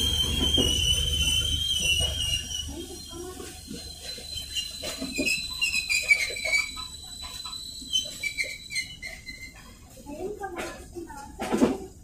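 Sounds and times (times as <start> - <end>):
high-pitched whine: 0.0 - 9.0.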